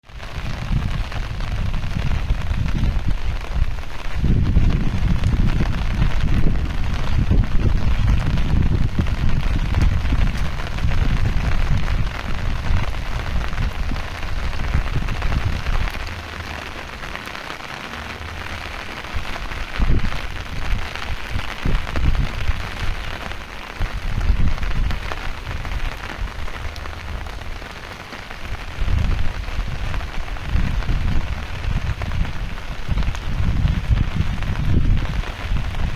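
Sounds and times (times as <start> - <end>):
heavy rain falling: 0.0 - 35.9
low rumbling: 0.2 - 17.2.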